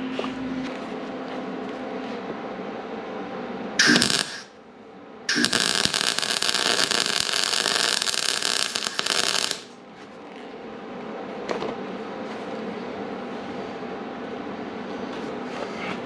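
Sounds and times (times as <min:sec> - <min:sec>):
shop hum: 0:00.0 - 0:16.0
welding arc crackling: 0:03.8 - 0:04.5, 0:05.3 - 0:09.8.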